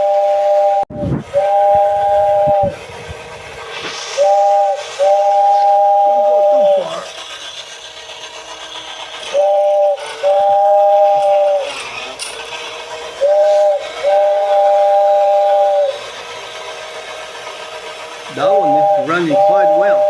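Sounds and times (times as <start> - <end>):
toy train two-note horn: 0.0 - 2.9, 4.1 - 7.2, 9.2 - 12.3, 13.2 - 16.2, 18.3 - 20.0
toy motor and wheels running: 3.2 - 20.0.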